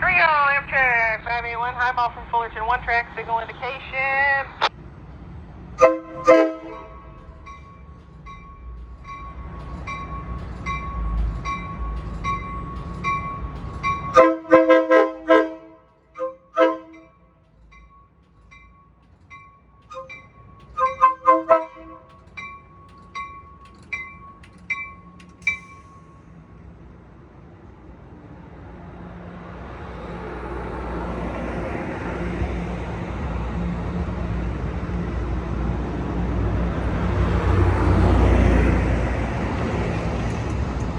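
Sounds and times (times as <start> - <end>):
train rumble: 0.0 - 40.9
train horn blasts: 5.8 - 7.4, 14.1 - 17.4, 19.9 - 22.2
train bell ringing: 6.1 - 14.4, 16.2 - 26.6.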